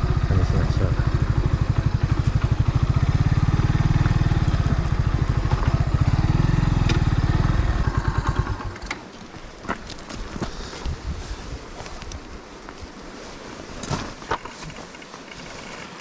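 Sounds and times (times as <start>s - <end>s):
motorcycle engine idling: 0.0s - 8.9s.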